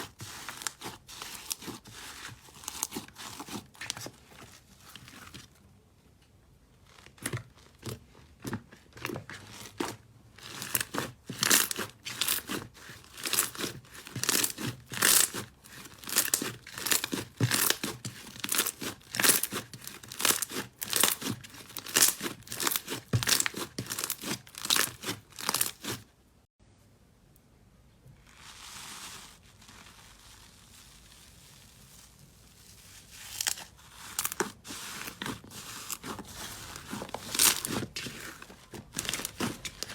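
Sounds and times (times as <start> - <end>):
slime crackling and popping: 9.7 - 26.0, 33.2 - 39.9
soft rustle: 28.0 - 39.9.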